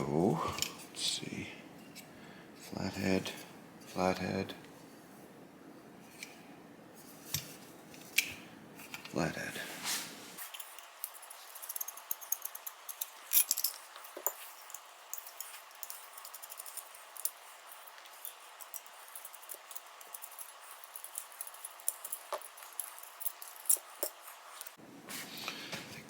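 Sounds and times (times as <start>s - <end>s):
metallic clicks and rattles of tools: 10.5s - 24.7s.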